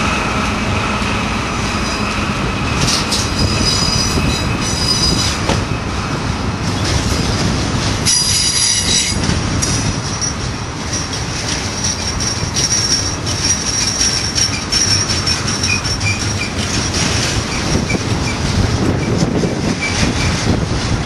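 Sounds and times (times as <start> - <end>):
rumble and clack of wheels: 0.0 - 21.0
train wheels squealing on rails: 1.5 - 5.9, 6.8 - 20.6.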